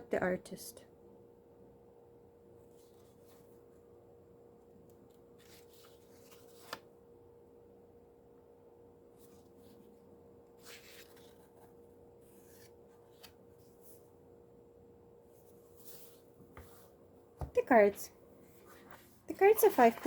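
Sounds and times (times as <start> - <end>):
faint steady hum: 0.0 - 20.0
paper rustling: 5.0 - 7.0, 10.6 - 14.1.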